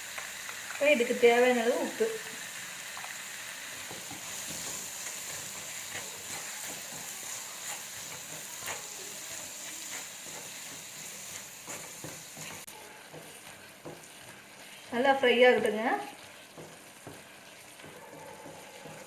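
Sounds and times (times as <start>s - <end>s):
vegetables sizzling in a pan: 0.0s - 19.0s.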